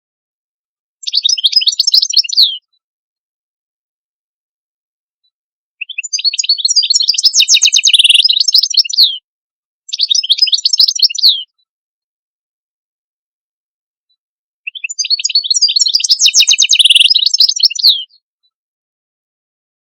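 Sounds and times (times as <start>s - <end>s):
songbird singing: 1.0s - 2.7s, 5.8s - 9.2s, 9.9s - 11.5s, 14.7s - 18.2s.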